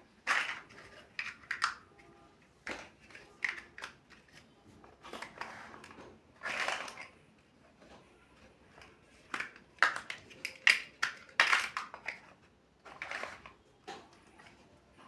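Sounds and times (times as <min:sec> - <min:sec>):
plastic bricks clicking: 0:00.2 - 0:01.9, 0:02.6 - 0:04.4, 0:05.1 - 0:07.2, 0:08.8 - 0:13.5.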